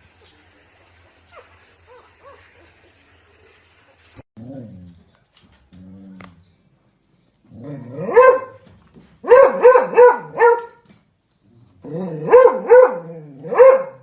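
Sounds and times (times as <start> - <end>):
dog barking: 7.9 - 8.6, 9.2 - 10.8, 12.2 - 14.0.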